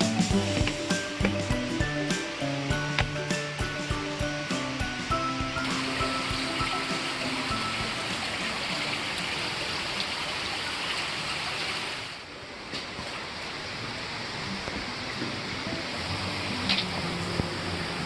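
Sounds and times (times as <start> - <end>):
rushing stream water: 0.0 - 12.3.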